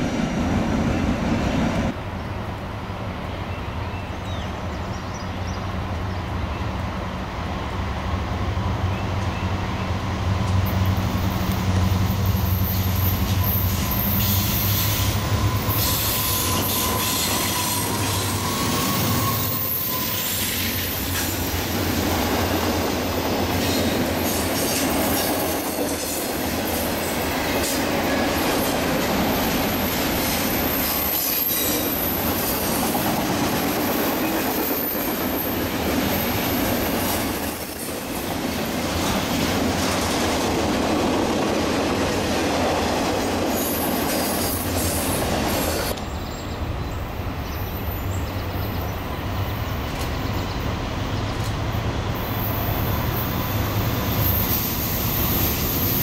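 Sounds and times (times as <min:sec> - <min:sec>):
train wheel squeal: 0:10.5 - 0:38.1, 0:43.4 - 0:56.0.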